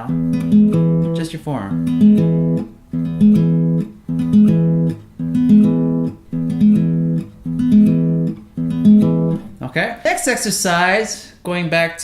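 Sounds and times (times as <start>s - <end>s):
fingerpicked acoustic guitar: 0.0s - 9.7s.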